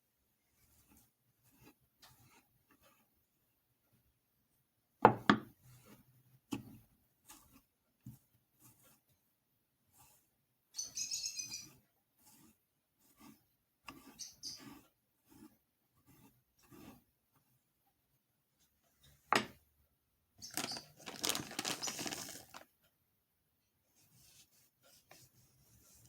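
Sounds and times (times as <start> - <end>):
crinkling: 20.4 - 22.7.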